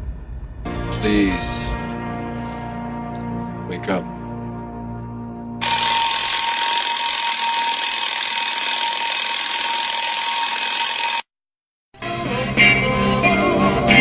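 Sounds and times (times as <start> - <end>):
alarm clock ringing: 5.6 - 11.3.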